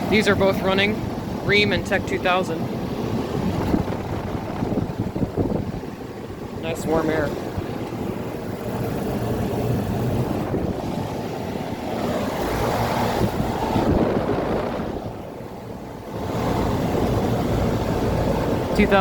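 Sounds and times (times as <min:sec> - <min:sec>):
condenser fans rushing: 0:00.0 - 0:19.0.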